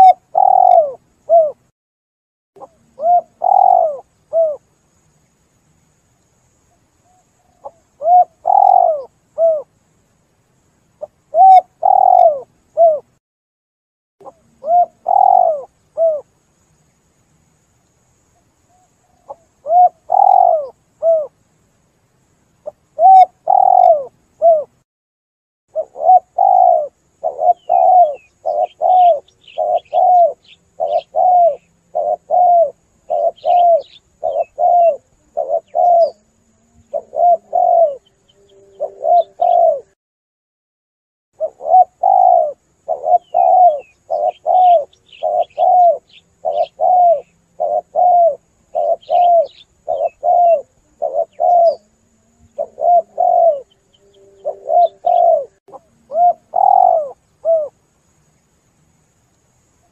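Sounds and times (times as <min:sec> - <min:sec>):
small bird chirping: 0:00.0 - 0:01.6, 0:02.6 - 0:10.1, 0:11.0 - 0:13.1, 0:14.2 - 0:17.1, 0:18.1 - 0:21.3, 0:22.6 - 0:24.8, 0:25.7 - 0:40.0, 0:41.4 - 0:58.6
dove cooing: 0:00.0 - 0:01.7, 0:02.6 - 0:04.6, 0:07.5 - 0:09.7, 0:11.0 - 0:13.2, 0:14.2 - 0:16.3, 0:18.7 - 0:21.4, 0:22.6 - 0:24.8, 0:25.7 - 0:40.0, 0:41.4 - 0:57.8.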